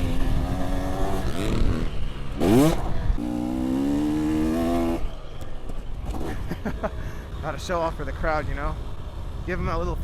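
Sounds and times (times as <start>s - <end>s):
dirt bike engine revving: 0.0s - 5.2s.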